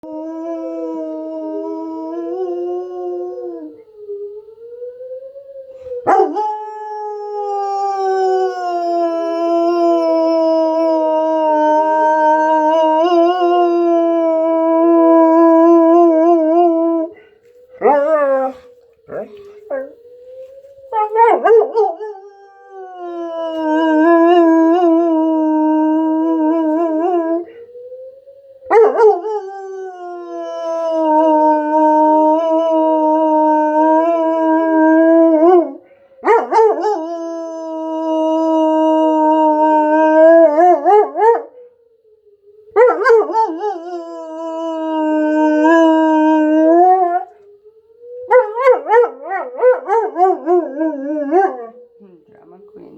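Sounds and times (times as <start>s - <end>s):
dog howling: 0.0s - 4.0s, 5.7s - 27.7s, 28.7s - 41.6s, 42.7s - 52.0s
tornado siren rising and falling: 0.0s - 52.9s.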